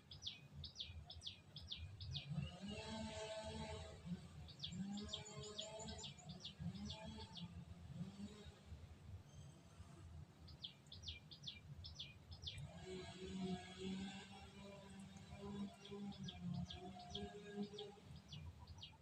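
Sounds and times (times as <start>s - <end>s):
bird chirping: 0.0s - 3.0s, 4.4s - 8.1s, 10.5s - 12.6s, 14.9s - 19.0s.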